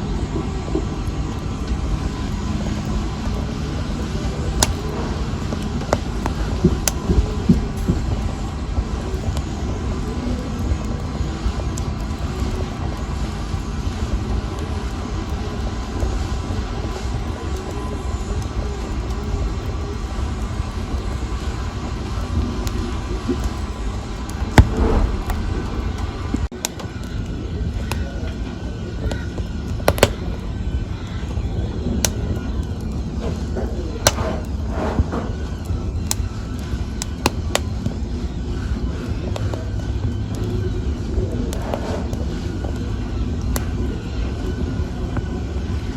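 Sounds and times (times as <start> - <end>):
fire crackling and popping: 0.0 - 45.9
fire roaring: 0.0 - 45.9.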